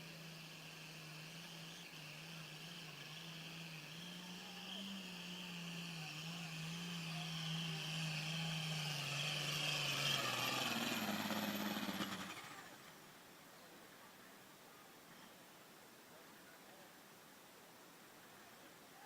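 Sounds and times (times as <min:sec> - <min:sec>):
diesel tractor engine under load: 0:00.0 - 0:12.8.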